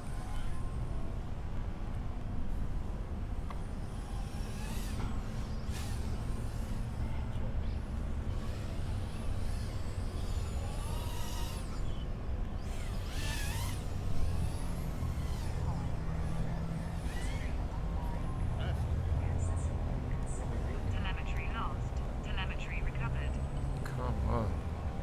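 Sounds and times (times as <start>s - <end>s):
electric motor whining: 3.5s - 19.5s.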